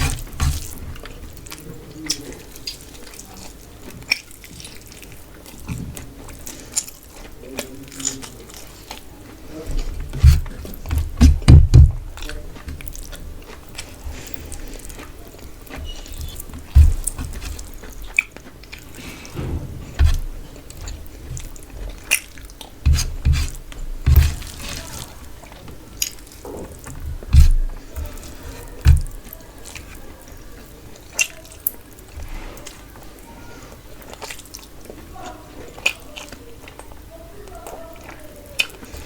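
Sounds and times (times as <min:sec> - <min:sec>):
wet chewing: 0:00.0 - 0:39.0
loud low thumps: 0:19.4 - 0:21.5.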